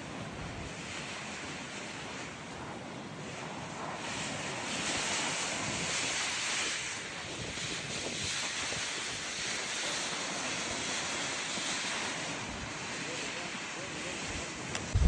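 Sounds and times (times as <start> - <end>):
wind rushing over microphone: 0.0 - 9.6, 14.1 - 15.0.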